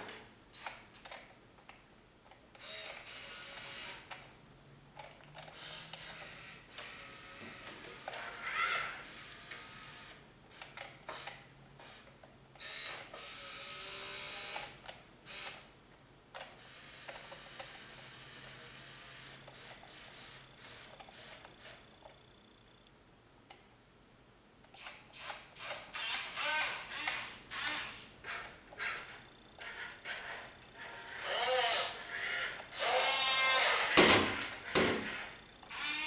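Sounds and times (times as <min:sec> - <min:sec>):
small electric motors whirring: 0:02.6 - 0:04.2, 0:05.4 - 0:15.6, 0:16.6 - 0:21.8, 0:24.8 - 0:36.0.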